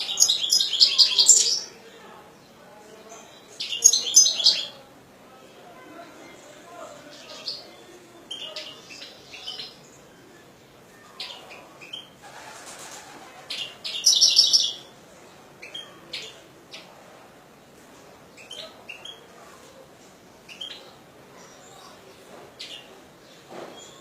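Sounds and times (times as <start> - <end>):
finch singing: 0.0 - 1.8, 3.2 - 4.8, 13.5 - 14.9.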